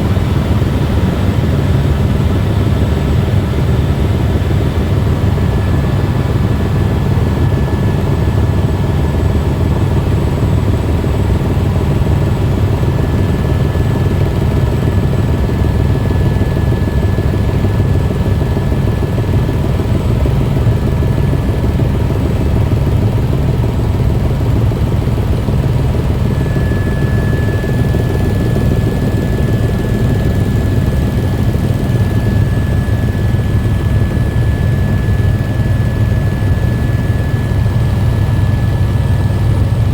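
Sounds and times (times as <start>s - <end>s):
helicopter rotor and engine drone: 0.0s - 39.9s
thin steady whine: 23.8s - 39.9s.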